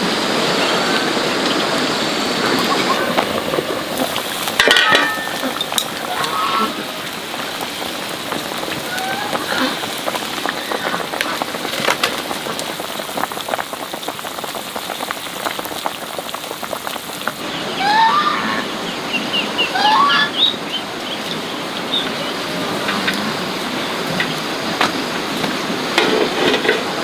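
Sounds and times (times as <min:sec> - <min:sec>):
rain pattering: 0:00.0 - 0:18.0, 0:18.6 - 0:27.0
rising chirping calls: 0:17.4 - 0:22.5.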